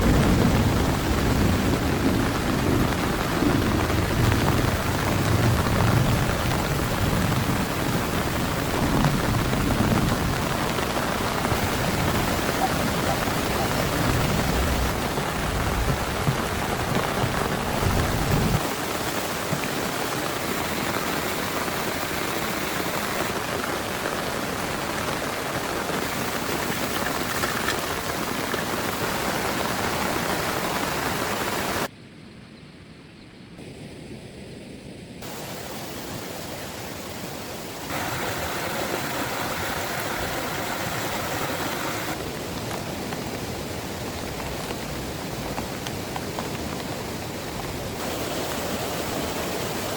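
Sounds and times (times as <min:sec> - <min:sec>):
low rolling thunder: 0:00.0 - 0:18.7
heavy rain pouring: 0:00.0 - 0:31.9, 0:35.2 - 0:49.9.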